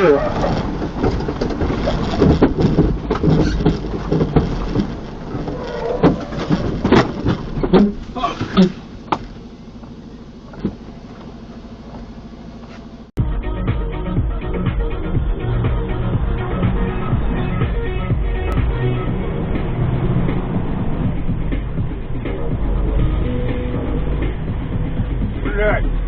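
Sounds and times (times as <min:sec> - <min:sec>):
vehicle running from inside cab: 0:00.0 - 0:13.2, 0:14.0 - 0:26.0
knocks and clicks: 0:00.4 - 0:11.3.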